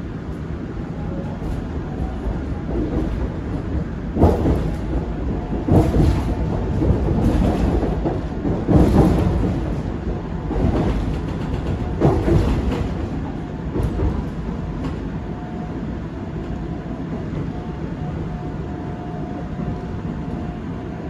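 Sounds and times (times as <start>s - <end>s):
train low rumble: 0.0s - 21.0s
wheels thudding over track joints: 2.7s - 15.0s.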